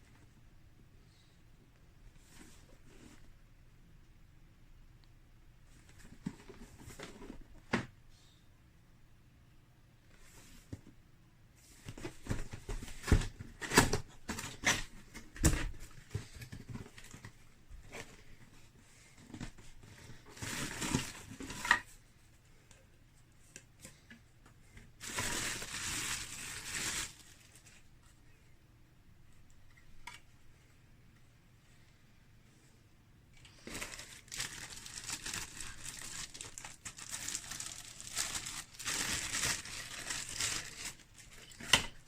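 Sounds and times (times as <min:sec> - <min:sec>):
rustling: 0:33.4 - 0:41.8.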